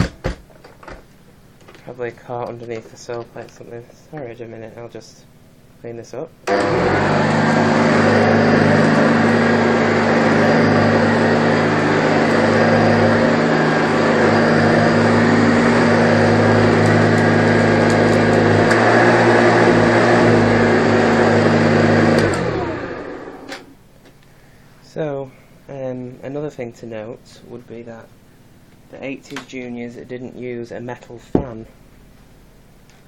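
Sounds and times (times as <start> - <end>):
vacuum cleaner running: 6.4 - 23.8.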